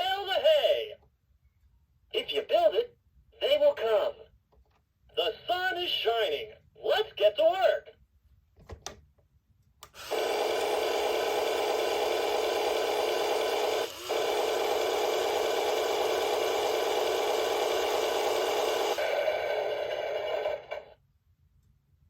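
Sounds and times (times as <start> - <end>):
toy tractor engine rumbling: 10.0 - 21.0.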